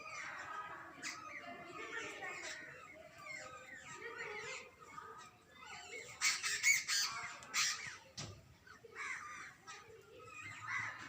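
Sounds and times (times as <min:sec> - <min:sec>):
birds chattering: 0:00.0 - 0:11.0.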